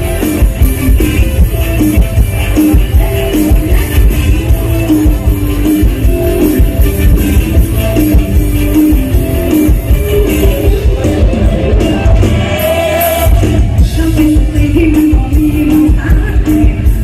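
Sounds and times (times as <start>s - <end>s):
person singing: 0.0s - 7.2s, 9.6s - 17.0s
heavy bass drum beat: 0.0s - 17.0s.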